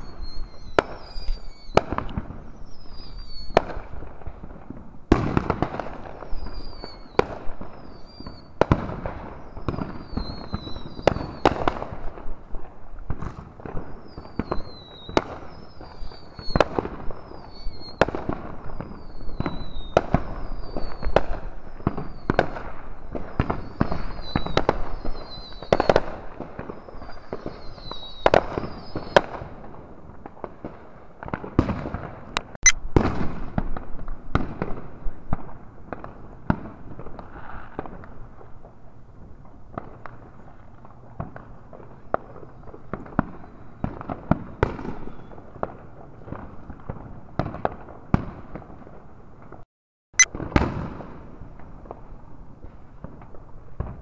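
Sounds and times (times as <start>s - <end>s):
high falling whistles: 0.0s - 1.8s, 2.4s - 3.6s, 6.2s - 8.5s, 9.3s - 11.4s, 14.1s - 18.0s
fireworks banging and cracking: 0.0s - 32.3s, 33.0s - 49.6s.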